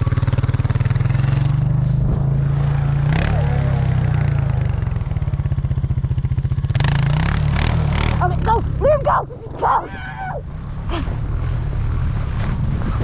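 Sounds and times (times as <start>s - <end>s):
snowmobile engine running: 0.0s - 10.0s.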